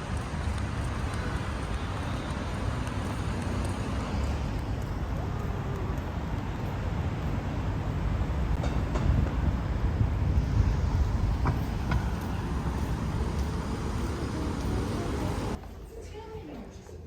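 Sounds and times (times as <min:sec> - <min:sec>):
road traffic rumble: 0:00.0 - 0:15.6
wind on microphone: 0:08.8 - 0:15.6.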